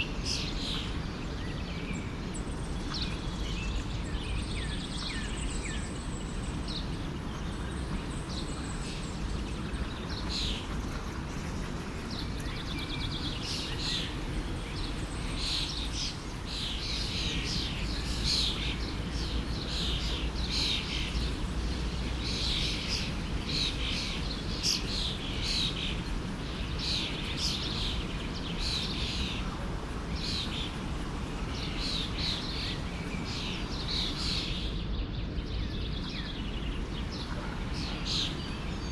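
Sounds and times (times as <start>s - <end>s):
small birds chirping: 0.0s - 38.9s
forest stream flowing: 13.0s - 34.8s, 35.6s - 38.9s.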